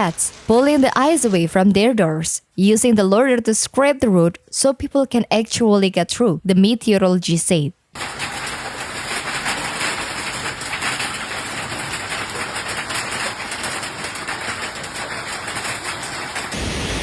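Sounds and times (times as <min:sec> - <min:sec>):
heavy rain falling: 0:00.0 - 0:01.5, 0:08.0 - 0:17.0.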